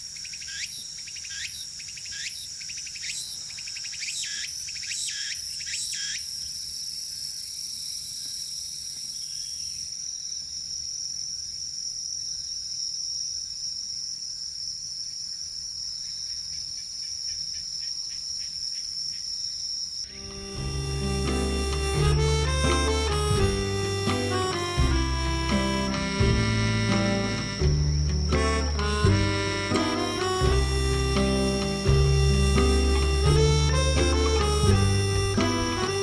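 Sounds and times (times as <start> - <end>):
quick sharp insect chirps: 0.0 - 10.5
crickets trilling: 0.0 - 20.7, 25.5 - 36.0.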